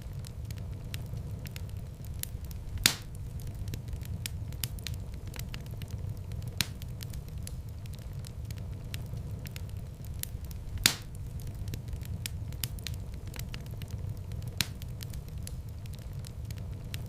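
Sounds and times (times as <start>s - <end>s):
low rumble of flames: 0.0s - 17.0s
small fire crackles: 0.0s - 17.0s
loud fire pop: 2.8s - 3.2s, 10.8s - 11.2s.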